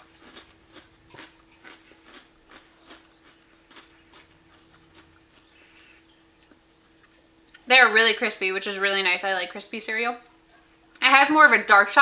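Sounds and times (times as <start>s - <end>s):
person chewing crunchy cereal: 0.0s - 7.6s.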